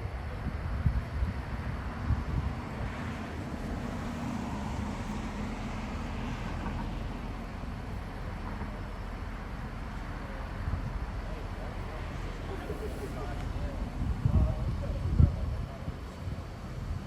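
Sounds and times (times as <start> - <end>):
engine hum: 0.0 - 17.0
street traffic rumble: 0.0 - 17.0.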